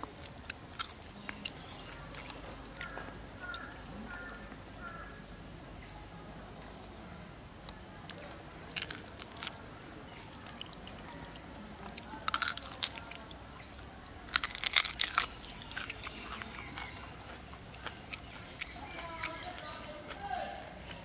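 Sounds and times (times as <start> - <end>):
person chewing raw meat: 0.0 - 21.0
sharp crunches: 8.1 - 9.6, 11.9 - 13.6, 14.2 - 19.0.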